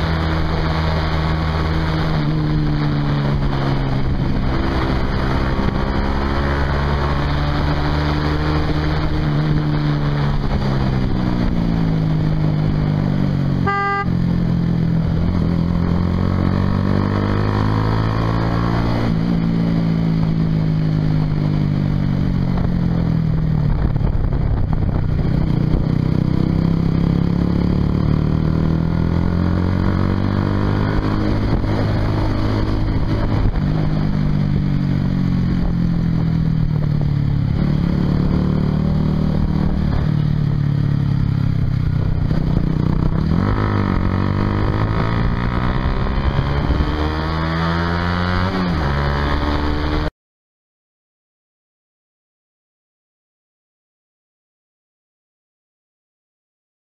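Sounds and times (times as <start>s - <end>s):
motorcycle engine accelerating: 0.0s - 50.1s.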